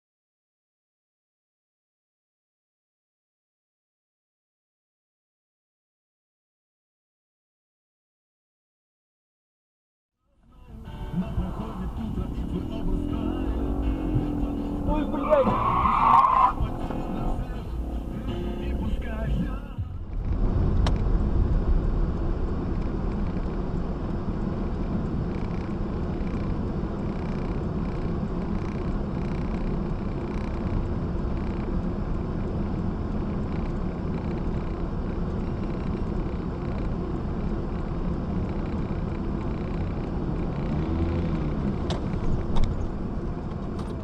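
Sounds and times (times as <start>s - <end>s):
vehicle rumble and road noise: 10.2s - 44.0s.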